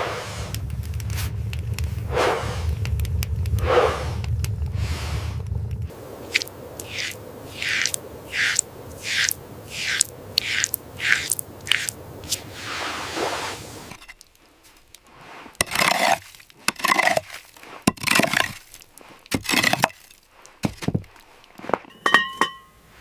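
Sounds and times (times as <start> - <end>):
whoosh: 0.0 - 6.0
hard objects clattering and clinking: 13.9 - 22.7.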